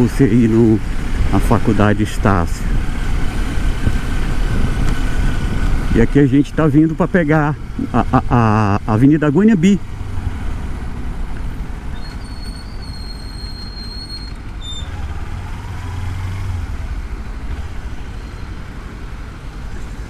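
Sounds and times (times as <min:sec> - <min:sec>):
motorcycle engine: 0:00.0 - 0:20.0
road traffic: 0:00.0 - 0:20.0
wind: 0:00.0 - 0:20.0
high-pitched brake squeal: 0:11.9 - 0:16.1, 0:18.0 - 0:18.8.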